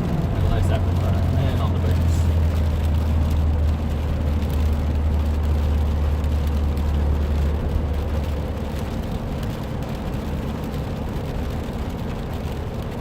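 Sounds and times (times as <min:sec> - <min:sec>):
car engine drone: 0:00.0 - 0:13.0
tyre noise on wet pavement: 0:00.0 - 0:13.0.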